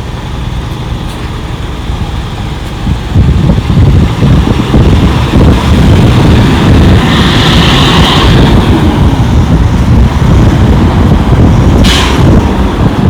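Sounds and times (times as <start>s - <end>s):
wind buffeting microphone: 1.4s - 13.0s
short sharp noise: 11.8s - 12.5s.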